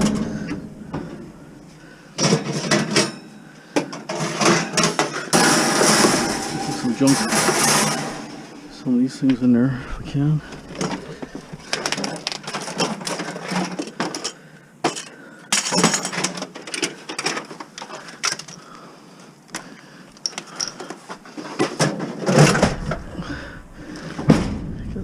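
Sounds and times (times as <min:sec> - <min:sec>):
scrap metal knocks and clanks: 0:00.0 - 0:01.5, 0:02.2 - 0:14.3.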